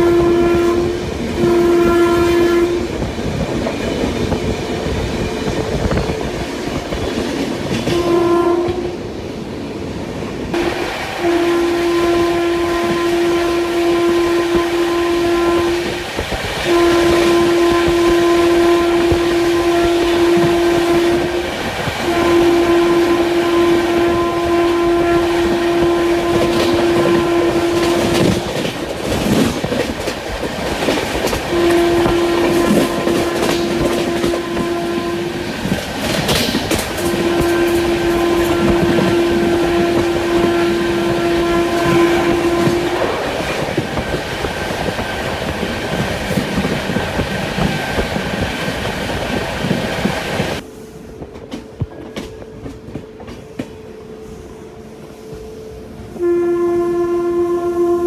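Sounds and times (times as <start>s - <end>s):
train horn blasts: 0.0s - 9.2s, 10.5s - 30.1s, 30.7s - 48.5s, 49.6s - 58.0s
train running on track: 0.0s - 58.0s.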